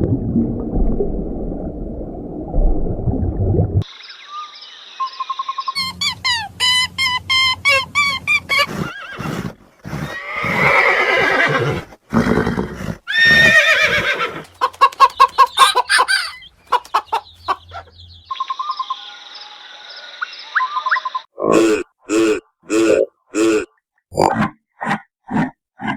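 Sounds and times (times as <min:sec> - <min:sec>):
horse whinnying: 0:07.9 - 0:14.6.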